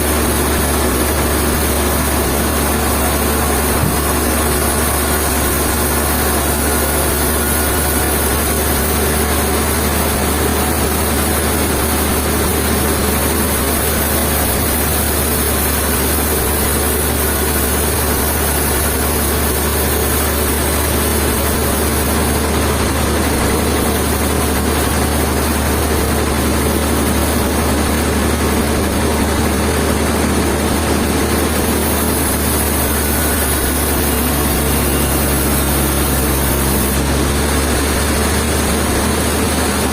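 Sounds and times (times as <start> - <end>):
heavy engine humming: 0.0 - 39.9.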